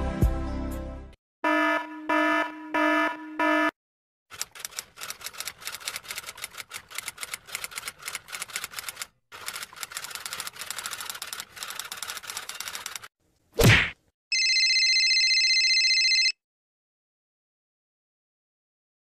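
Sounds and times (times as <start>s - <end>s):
typewriter keys clacking: 4.3s - 13.1s.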